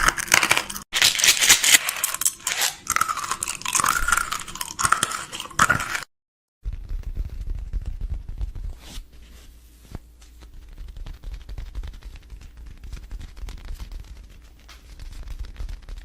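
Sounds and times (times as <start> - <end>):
containers clicking and clattering: 0.0 - 6.1.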